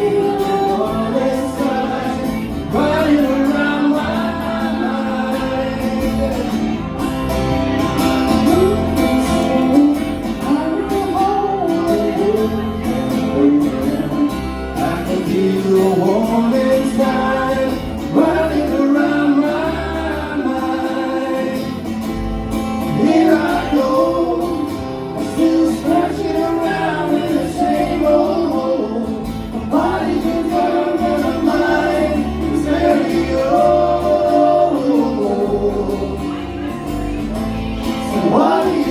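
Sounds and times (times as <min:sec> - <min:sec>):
person singing: 0:22.9 - 0:36.7, 0:37.3 - 0:38.9.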